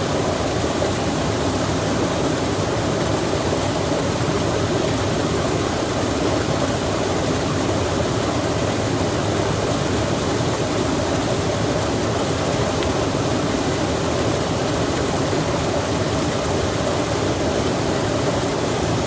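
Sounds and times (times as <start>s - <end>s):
running water rushing: 0.0s - 19.0s.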